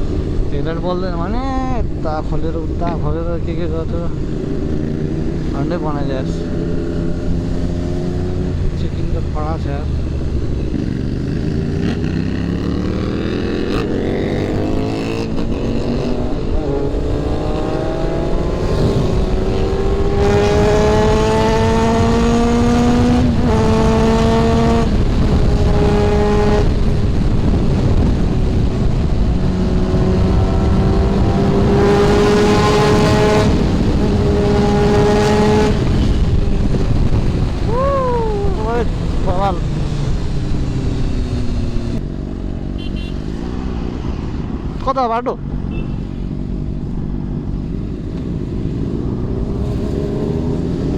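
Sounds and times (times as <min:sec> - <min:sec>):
motorcycle engine accelerating: 0:04.1 - 0:50.9
wind on microphone: 0:09.9 - 0:42.6.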